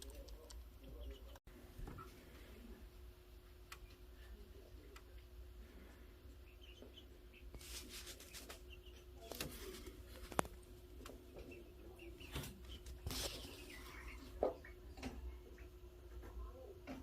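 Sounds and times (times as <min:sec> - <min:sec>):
chicks peeping: 0:00.0 - 0:02.2, 0:05.8 - 0:16.7.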